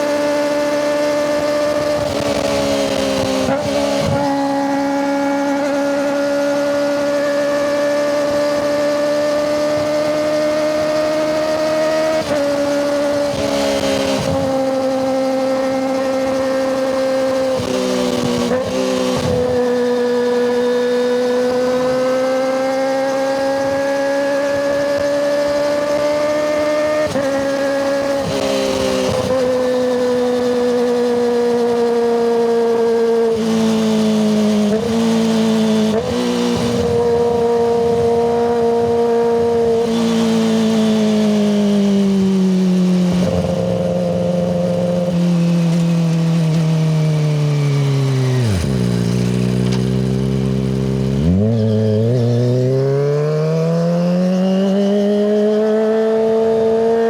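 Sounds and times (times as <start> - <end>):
motorcycle engine revving high: 0.0 - 57.0.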